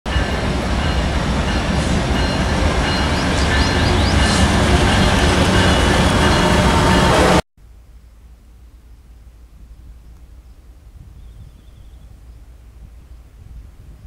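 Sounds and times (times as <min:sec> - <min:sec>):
train rumbling on rails: 0:00.1 - 0:07.4.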